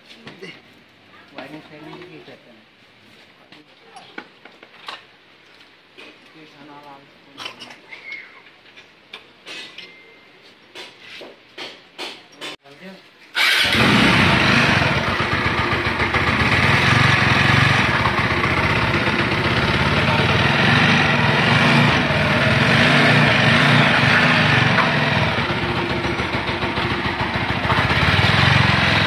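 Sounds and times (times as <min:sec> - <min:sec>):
motorcycle engine starting and running: 0:13.4 - 0:29.0.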